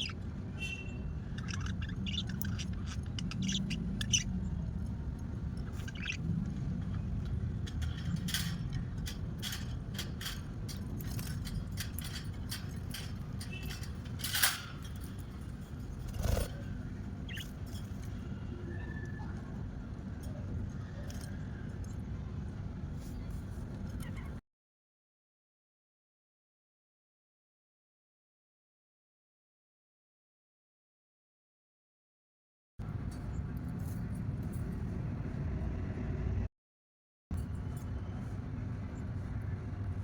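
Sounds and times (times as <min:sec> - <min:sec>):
small birds chirping: 0:00.0 - 0:08.8, 0:10.9 - 0:19.3
steady low rumble: 0:01.2 - 0:24.4, 0:32.8 - 0:36.5, 0:37.3 - 0:40.0.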